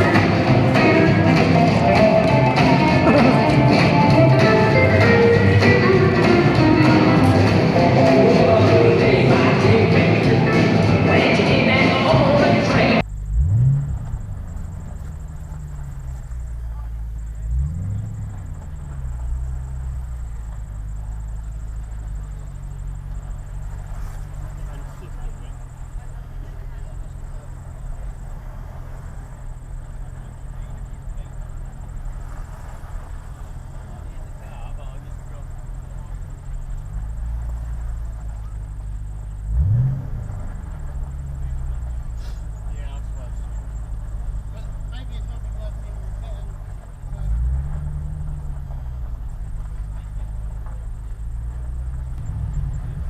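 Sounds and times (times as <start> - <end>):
car engine running: 0.0 - 53.0.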